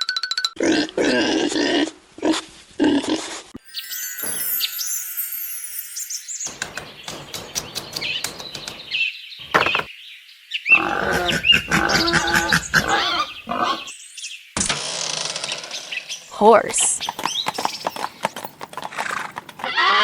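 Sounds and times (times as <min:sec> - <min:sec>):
bird chirps and tweets: 0:03.6 - 0:14.6, 0:15.5 - 0:18.6
dense animal call: 0:10.7 - 0:13.9.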